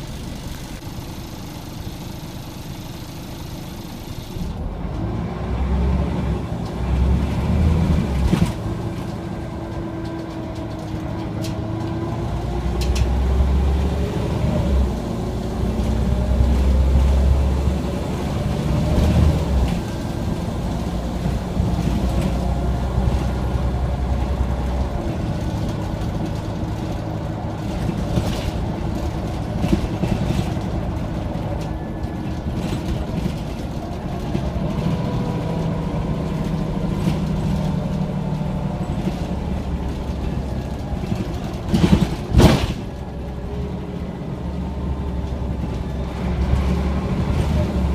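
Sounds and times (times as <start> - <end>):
bus diesel engine running: 0.0 - 47.9
knocks and rattles: 38.8 - 43.2.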